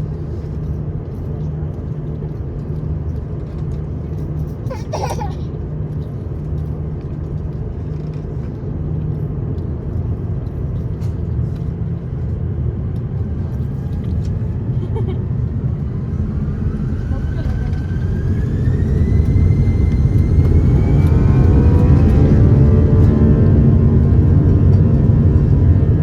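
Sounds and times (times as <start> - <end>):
airliner cabin rumble: 0.0 - 26.0.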